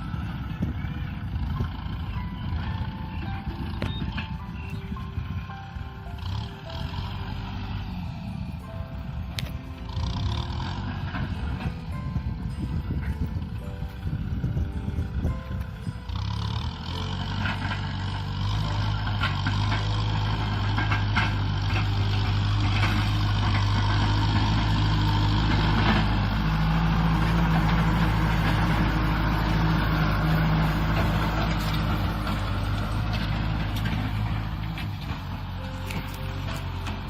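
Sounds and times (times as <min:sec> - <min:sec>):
tractor diesel engine running: 0:00.0 - 0:37.0
metal clanks: 0:17.0 - 0:37.0.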